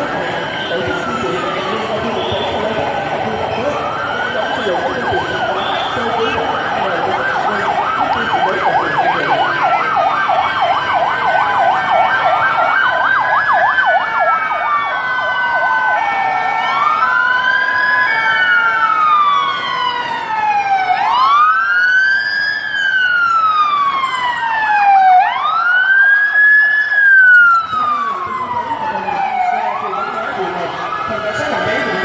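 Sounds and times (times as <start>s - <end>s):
siren wail: 0.0s - 32.0s
siren yelp: 0.0s - 32.0s.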